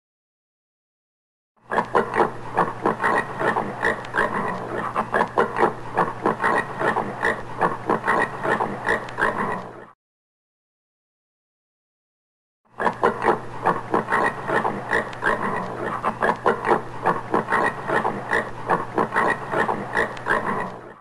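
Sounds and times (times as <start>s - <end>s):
warthog grunting: 12.8s - 21.0s.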